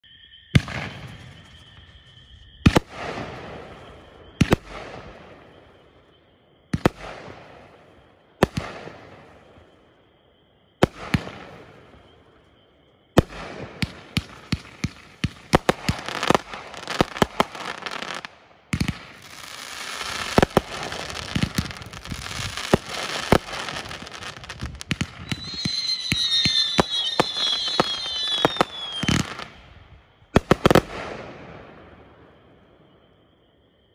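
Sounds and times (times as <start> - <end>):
falling whistles: 0.0 - 6.4, 15.6 - 18.3, 19.0 - 30.8
fireworks shots with crackle: 0.5 - 9.9, 10.7 - 33.3
rapid volley of firework shots: 13.2 - 29.6, 30.3 - 31.5.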